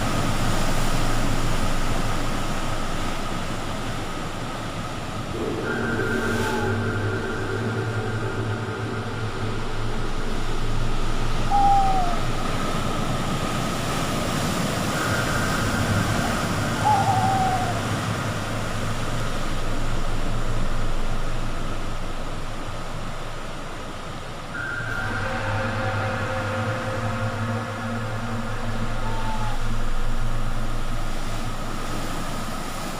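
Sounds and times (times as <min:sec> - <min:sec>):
sea surf rushing: 0:00.0 - 0:32.9
short falling calls: 0:05.4 - 0:12.6, 0:15.0 - 0:18.1, 0:24.6 - 0:30.6.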